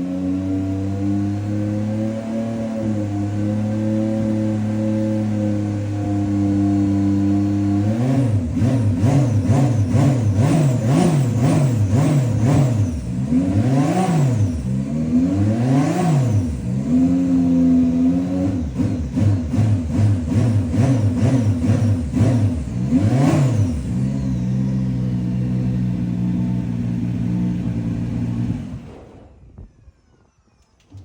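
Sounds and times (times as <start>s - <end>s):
race car engine revving: 0.0s - 29.2s.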